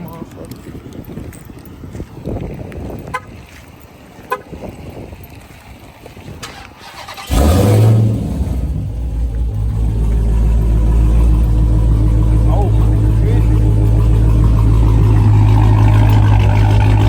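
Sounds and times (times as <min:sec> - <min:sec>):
car engine starting and idling: 0:06.3 - 0:17.0.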